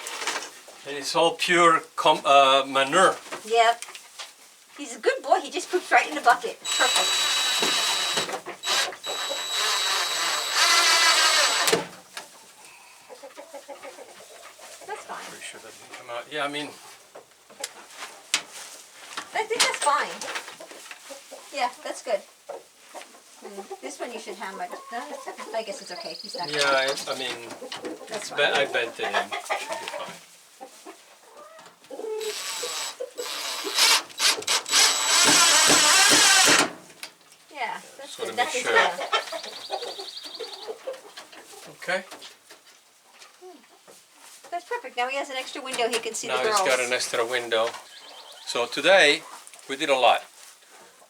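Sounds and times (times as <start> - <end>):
rasping scraping on wood: 6.6 - 11.8, 32.2 - 36.7
power tool whining: 6.6 - 11.9, 32.2 - 36.8.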